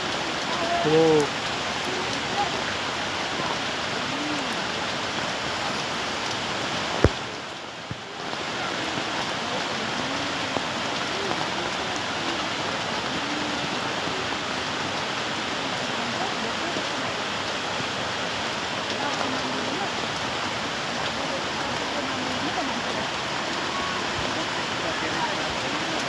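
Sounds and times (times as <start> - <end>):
flooded stream rushing: 0.0 - 26.0.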